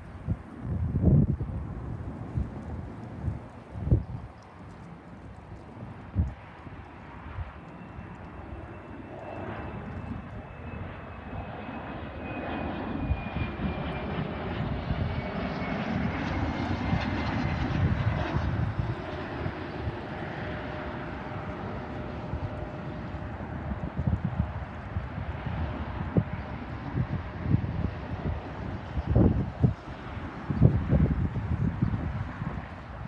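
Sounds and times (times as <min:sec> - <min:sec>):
jet airliner engines passing: 0:00.0 - 0:33.0.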